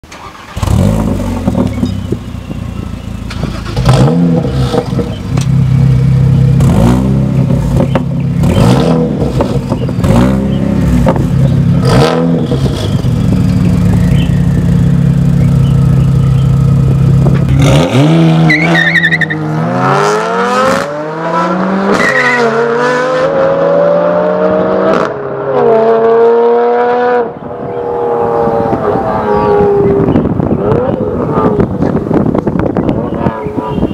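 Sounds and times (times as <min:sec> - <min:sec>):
car accelerating through gears: 0:17.6 - 0:31.9.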